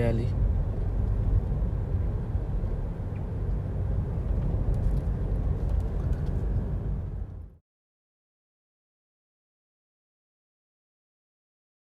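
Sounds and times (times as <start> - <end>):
low outdoor rumble: 0.0 - 7.6.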